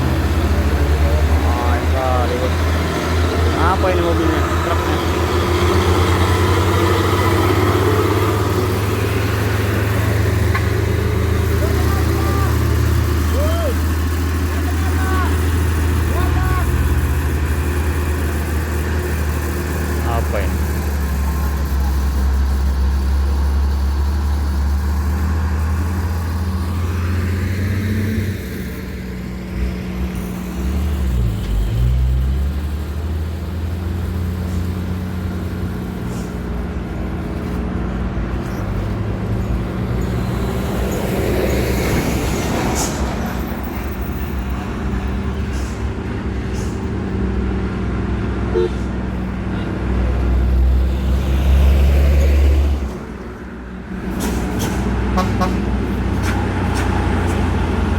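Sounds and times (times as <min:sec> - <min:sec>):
vehicle passing: 0:00.0 - 0:13.4
diesel truck engines droning: 0:00.0 - 0:57.9.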